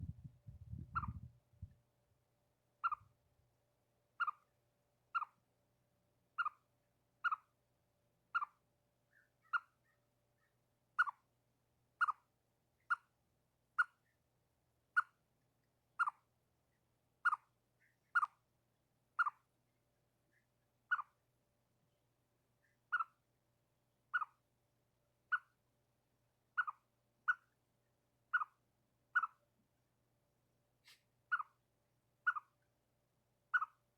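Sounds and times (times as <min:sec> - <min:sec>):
chipmunk alarm chirps: 0:00.0 - 0:01.3, 0:02.8 - 0:03.1, 0:04.2 - 0:04.5, 0:05.1 - 0:05.4, 0:06.4 - 0:06.6, 0:07.2 - 0:07.5, 0:08.3 - 0:10.0, 0:11.0 - 0:11.3, 0:12.0 - 0:13.1, 0:14.9 - 0:15.2, 0:16.0 - 0:16.3, 0:17.2 - 0:18.4, 0:19.2 - 0:19.5, 0:20.3 - 0:21.2, 0:22.6 - 0:23.2, 0:24.1 - 0:24.4, 0:25.3 - 0:25.6, 0:26.5 - 0:27.6, 0:28.3 - 0:29.4, 0:31.3 - 0:31.6, 0:32.2 - 0:32.7, 0:33.5 - 0:33.9.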